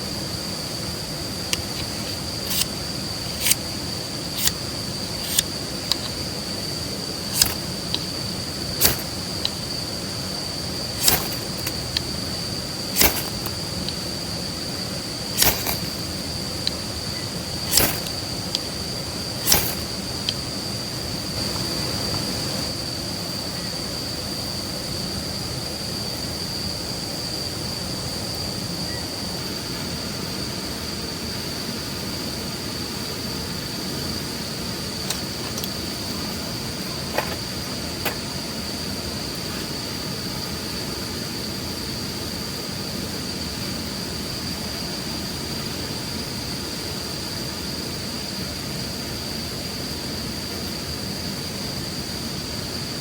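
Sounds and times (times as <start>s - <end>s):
background hiss: 0.0s - 53.0s
crickets chorus: 0.0s - 53.0s
sharp clicks: 1.5s - 2.7s, 4.4s - 4.6s, 5.2s - 6.2s, 7.3s - 8.2s, 8.8s - 9.6s, 11.0s - 12.2s, 13.0s - 14.0s, 15.4s - 16.8s, 17.7s - 18.7s, 19.4s - 20.5s.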